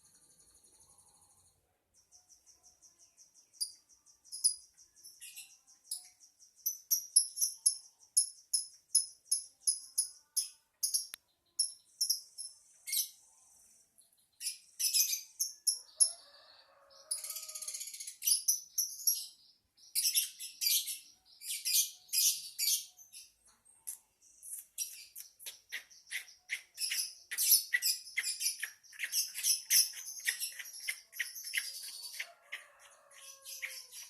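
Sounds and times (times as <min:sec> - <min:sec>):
lovebird chirping: 0:00.0 - 0:34.0
buzzy bird trill: 0:24.4 - 0:34.0.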